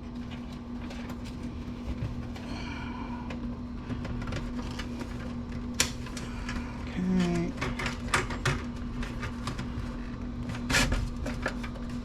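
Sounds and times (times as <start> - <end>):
steady low hum: 0.0 - 12.0
computer parts clicking and rattling: 4.0 - 11.9.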